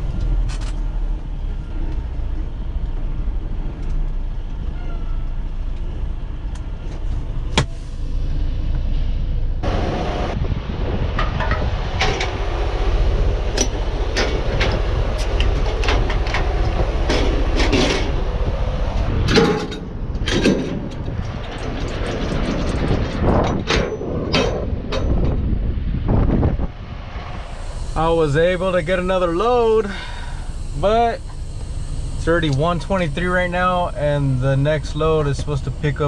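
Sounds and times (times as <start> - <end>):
diesel truck engine rumbling: 0.0 - 36.0
metallic clanks and knocks: 11.2 - 12.4, 13.6 - 18.2, 19.2 - 25.5.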